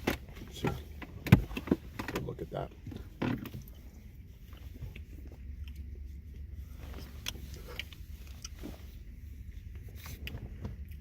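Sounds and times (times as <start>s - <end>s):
low steady hum: 0.0s - 11.0s
person chewing: 4.9s - 8.7s.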